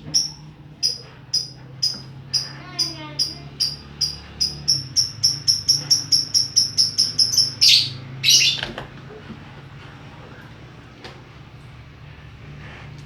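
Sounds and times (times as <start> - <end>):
songbird chirping: 0.1 - 8.7.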